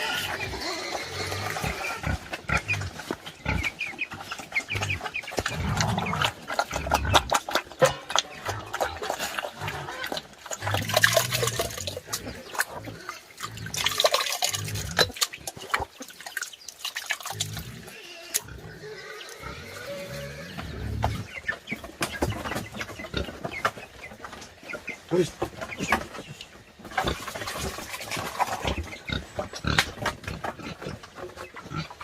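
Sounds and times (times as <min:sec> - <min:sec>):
pigs grunting: 0:00.0 - 0:16.2, 0:17.2 - 0:21.4, 0:26.8 - 0:32.0
pigs chewing clicks: 0:00.0 - 0:19.5, 0:20.6 - 0:32.0
chickens clucking: 0:00.0 - 0:32.0.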